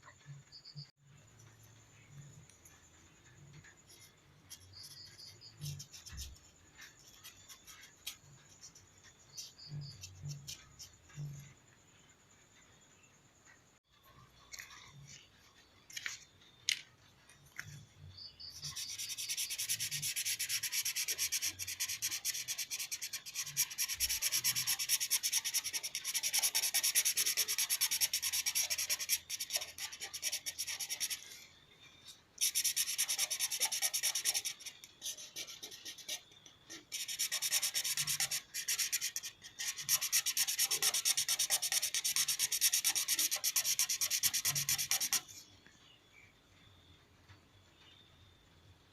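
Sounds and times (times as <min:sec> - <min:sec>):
colouring tool scribbling on paper: 0:03.6 - 0:11.6, 0:18.5 - 0:31.4, 0:32.4 - 0:45.4.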